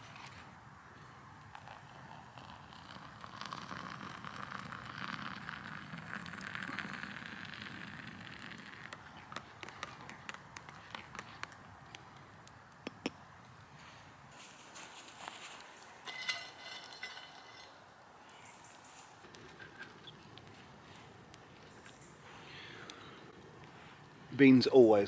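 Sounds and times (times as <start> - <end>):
campfire crackling and popping: 1.4 - 13.6, 14.9 - 22.0.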